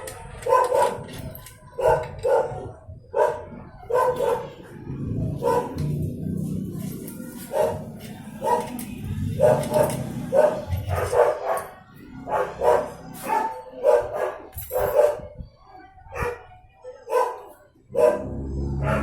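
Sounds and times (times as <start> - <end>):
dog barking: 0.4 - 4.7, 5.4 - 5.9, 7.4 - 15.3, 16.1 - 19.0.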